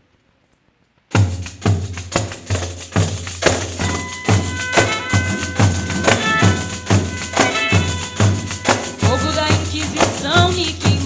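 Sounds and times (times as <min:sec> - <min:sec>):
tambourine jingle strokes: 0:01.3 - 0:11.0
steady pitched notes: 0:03.7 - 0:10.0.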